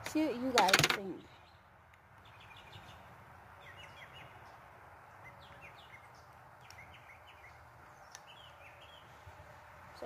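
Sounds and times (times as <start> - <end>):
faint bird chirps: 1.2 - 4.6, 5.2 - 9.2.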